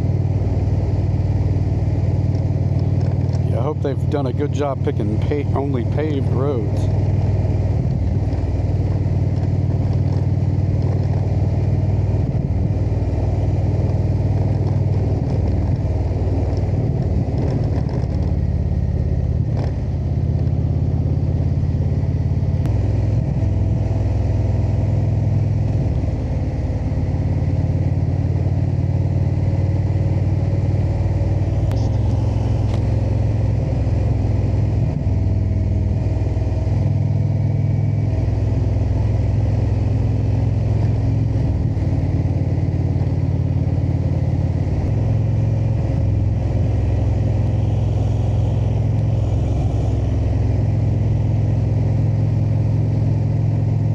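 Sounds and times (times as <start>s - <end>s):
motorcycle engine running: 0.0s - 53.9s
wind noise: 7.0s - 20.6s.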